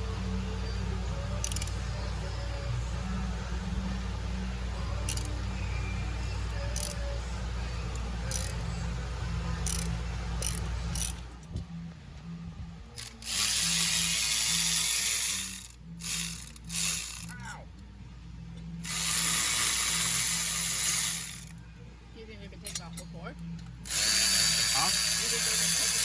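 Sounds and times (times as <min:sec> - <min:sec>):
socket ratchet clicking: 0:01.4 - 0:01.8, 0:05.0 - 0:05.4, 0:06.7 - 0:07.0, 0:07.9 - 0:08.6, 0:09.6 - 0:11.2, 0:13.0 - 0:17.3, 0:18.9 - 0:21.6, 0:23.9 - 0:26.0.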